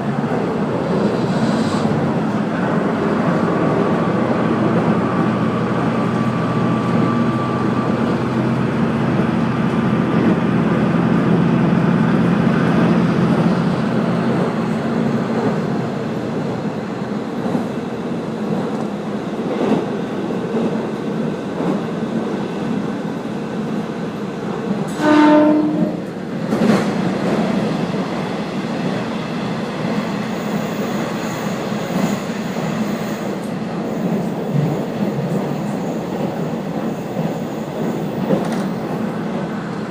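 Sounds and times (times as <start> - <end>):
railcar engine and wheels rumbling: 0.0 - 39.9
short train horn note: 24.9 - 26.1.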